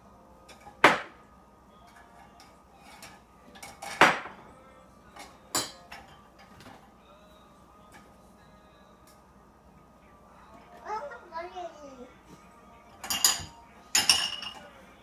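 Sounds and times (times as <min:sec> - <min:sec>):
cutlery clinking: 0:00.4 - 0:00.8, 0:01.8 - 0:04.2, 0:05.1 - 0:06.9, 0:12.9 - 0:14.8
dishes clattering: 0:01.8 - 0:04.4, 0:05.2 - 0:06.9, 0:12.9 - 0:14.8.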